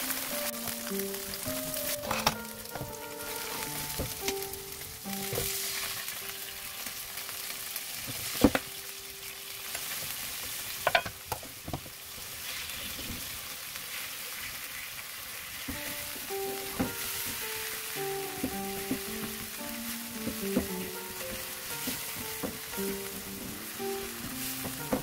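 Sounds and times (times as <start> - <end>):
tofu sizzling in oil: 0.0 - 25.0
spatula stirring in pan: 16.6 - 25.0.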